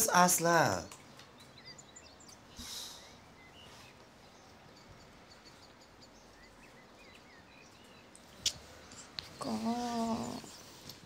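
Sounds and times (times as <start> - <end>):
small birds chirping: 0.0 - 11.0
soft rustle: 3.5 - 4.3, 8.2 - 11.0.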